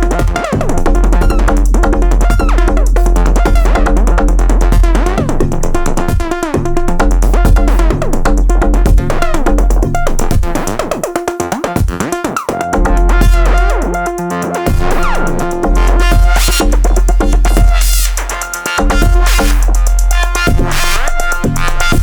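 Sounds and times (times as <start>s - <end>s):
heavy deep bass: 0.0s - 11.2s, 12.6s - 22.0s
experimental electronic music: 0.0s - 22.0s.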